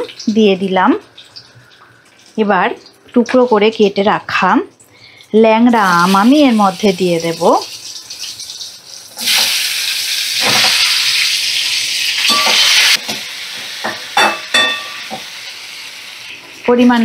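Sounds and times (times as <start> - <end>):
fruit sizzling in hot oil: 0.0 - 17.0
spatula clinking against a pan: 12.2 - 12.6, 13.9 - 15.1.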